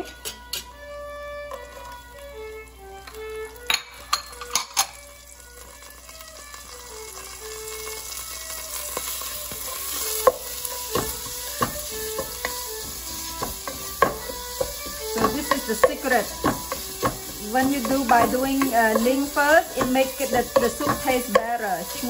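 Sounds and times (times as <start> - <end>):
paste sizzling in oil: 5.0 - 22.0
wooden spoon knocking pot: 9.5 - 22.0.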